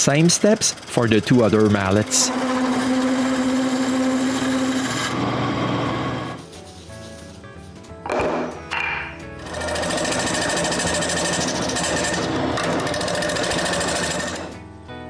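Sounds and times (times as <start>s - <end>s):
gouge cutting wood on lathe: 0.0s - 6.4s, 9.4s - 14.6s
background music: 0.0s - 15.0s.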